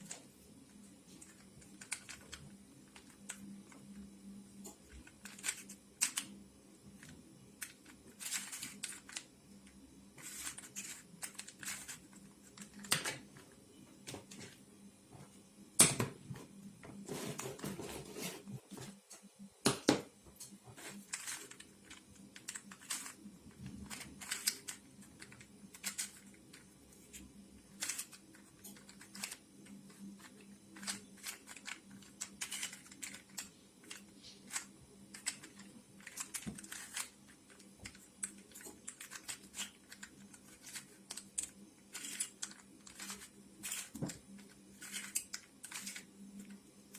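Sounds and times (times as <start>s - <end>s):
plastic puzzle pieces clicking: 1.2s - 3.8s, 4.9s - 6.3s, 7.0s - 9.3s, 10.2s - 13.2s, 21.1s - 26.6s, 27.7s - 46.6s.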